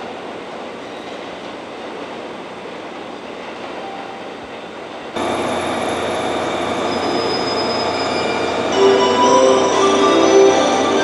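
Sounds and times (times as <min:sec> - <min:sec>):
train rushing: 0:00.0 - 0:11.0
electric train running: 0:05.2 - 0:11.0.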